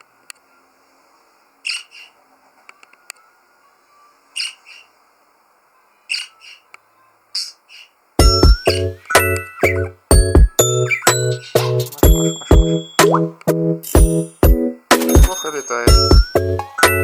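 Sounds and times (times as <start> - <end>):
budgerigar chirping: 1.6 - 2.2, 4.4 - 5.0, 6.1 - 6.7, 7.4 - 13.4, 15.9 - 17.0.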